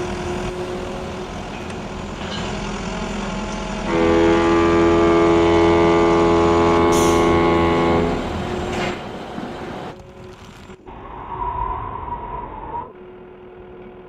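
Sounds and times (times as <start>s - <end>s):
engine running: 0.0s - 14.0s
vehicle horn blast: 3.8s - 8.3s.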